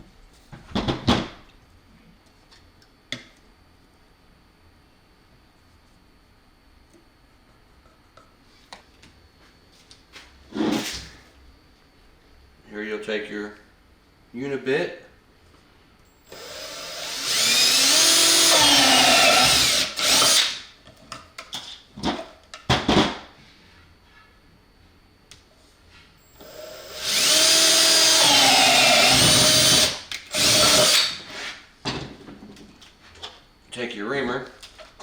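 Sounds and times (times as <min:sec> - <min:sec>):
electric drill drilling: 0:16.2 - 0:20.6, 0:26.3 - 0:31.2.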